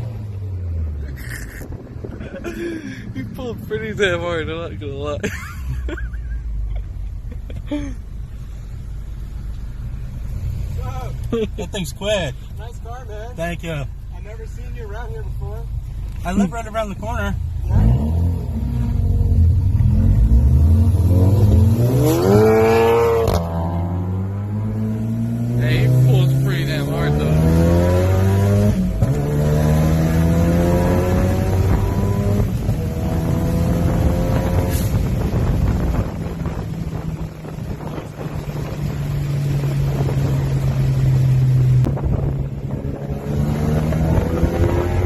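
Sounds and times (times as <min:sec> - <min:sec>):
car engine revving: 0:16.0 - 0:45.0.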